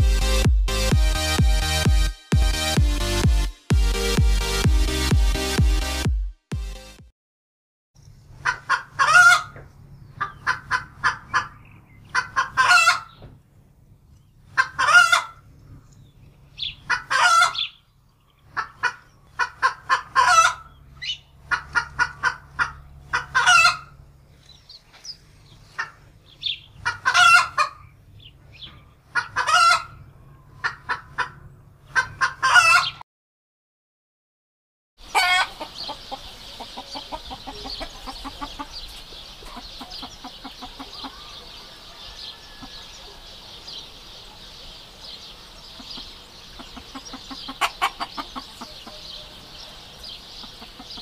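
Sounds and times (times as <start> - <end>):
chicken clucking: 8.4 - 13.3, 14.5 - 15.4, 16.6 - 17.8, 18.5 - 24.0, 25.7 - 27.9, 28.6 - 33.0, 35.0 - 44.4, 45.6 - 51.0.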